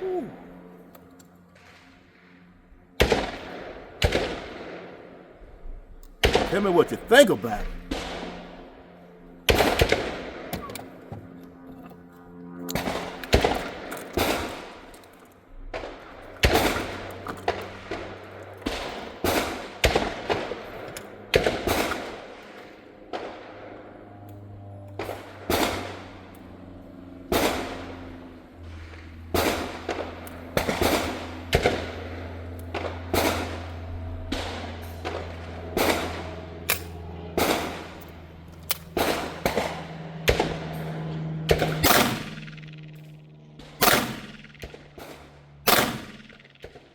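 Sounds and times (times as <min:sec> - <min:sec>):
gunshots with echo: 0:06.2 - 0:08.3, 0:43.6 - 0:44.6, 0:45.7 - 0:46.6.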